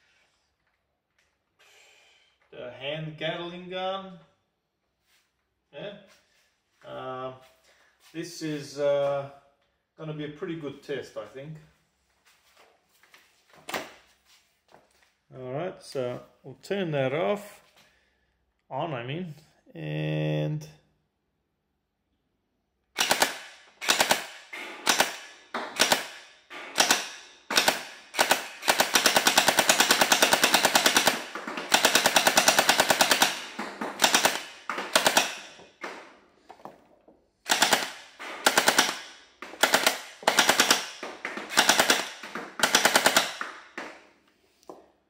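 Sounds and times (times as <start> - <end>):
gel blaster firing bursts: 23.0 - 35.5.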